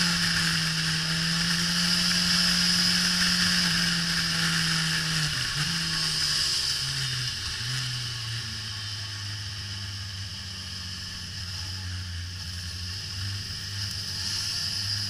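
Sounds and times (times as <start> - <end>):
motorcycle engine at high speed: 0.0 - 15.0.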